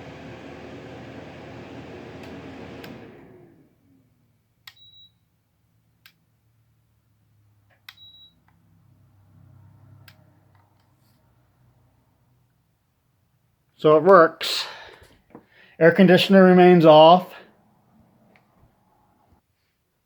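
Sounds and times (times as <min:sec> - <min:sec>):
air conditioner fan spinning down: 0:00.0 - 0:04.0.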